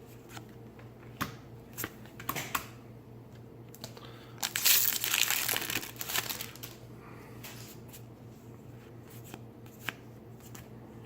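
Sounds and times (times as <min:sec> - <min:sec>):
foil wrapper crinkling: 0:04.4 - 0:06.8.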